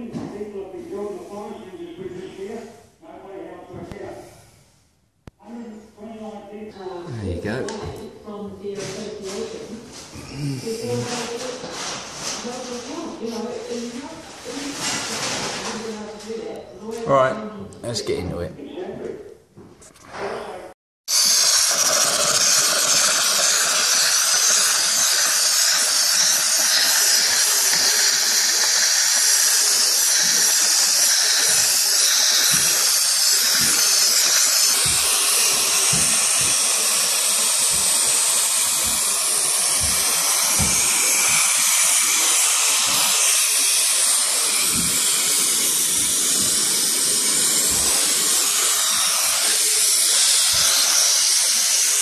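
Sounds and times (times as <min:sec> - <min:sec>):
steam cleaner hissing: 0:21.1 - 0:52.0.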